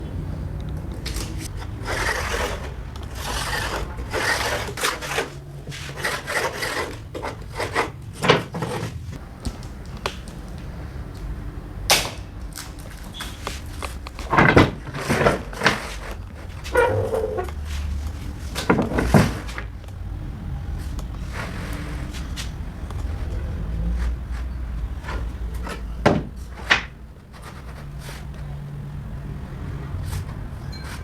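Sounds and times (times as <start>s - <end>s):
wood scraping: 0.7s - 11.2s, 12.0s - 31.0s
wood knocking and clattering: 0.8s - 10.6s, 11.9s - 20.0s, 24.0s - 28.5s.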